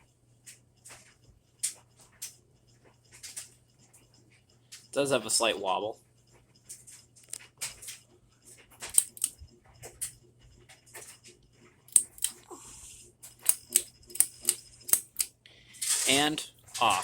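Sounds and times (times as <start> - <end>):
ceiling fan humming: 0.0 - 17.0
metallic ticks and rattles: 6.2 - 12.4.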